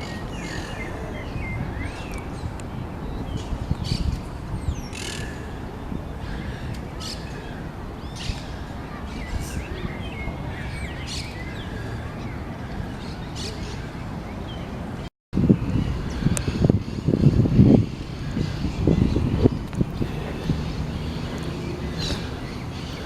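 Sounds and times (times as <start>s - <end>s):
small birds chirping: 15.6s - 23.0s.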